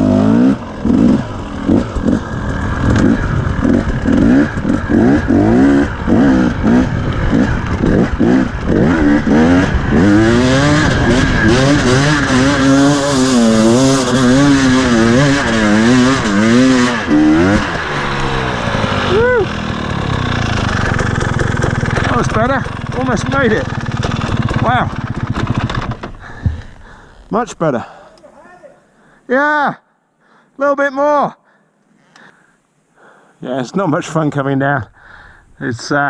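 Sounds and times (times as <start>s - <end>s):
dirt bike engine revving: 0.0s - 27.3s.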